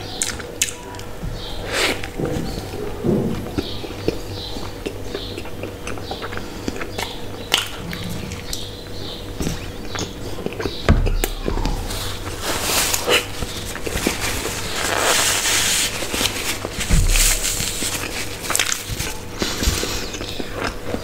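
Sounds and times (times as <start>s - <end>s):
chewing soft bread: 0.0s - 21.0s
low thumps: 10.7s - 13.7s
paper tissue rustling: 11.5s - 20.0s.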